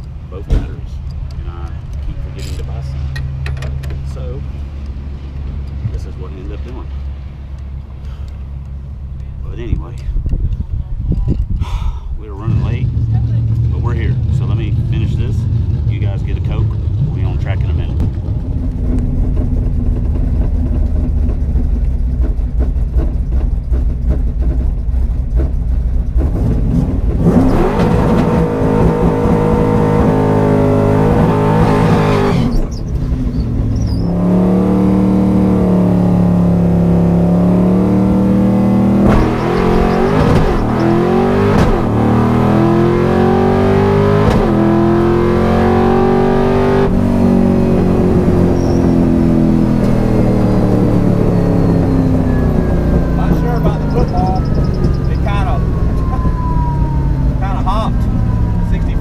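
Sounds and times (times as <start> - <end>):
car engine revving and accelerating: 12.3 - 59.0.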